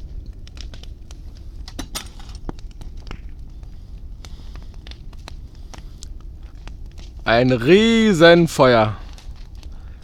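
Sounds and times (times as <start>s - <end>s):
sharp pops and snaps: 0.0s - 7.7s
bonfire crackling: 0.0s - 10.0s
low fire rumble: 0.0s - 10.0s.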